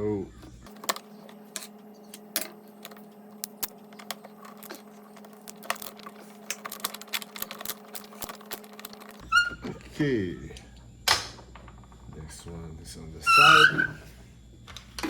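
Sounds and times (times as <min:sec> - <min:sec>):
steady low hum: 0:00.0 - 0:15.0
plastic parts clicking: 0:00.7 - 0:09.6.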